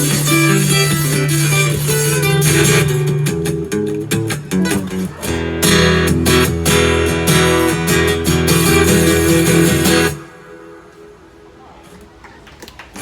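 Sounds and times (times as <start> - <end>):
guitar chords strummed: 0.0 - 11.4.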